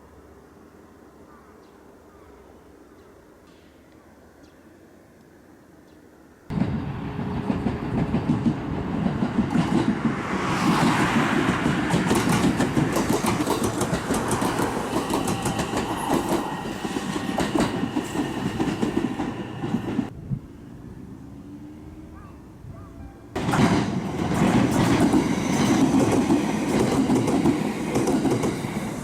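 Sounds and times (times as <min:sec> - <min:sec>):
train wheels clicking over rail joints: 0:06.5 - 0:20.1, 0:23.4 - 0:29.0.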